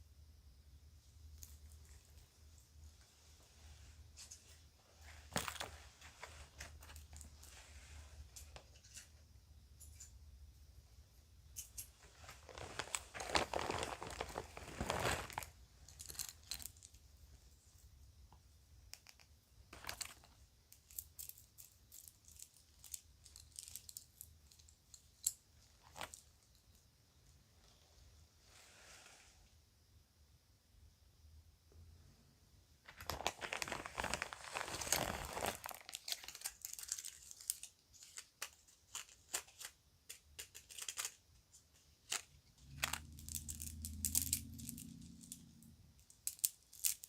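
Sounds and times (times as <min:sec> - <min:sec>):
bag crinkling: 0:12.1 - 0:16.9, 0:25.7 - 0:26.4, 0:32.9 - 0:39.6.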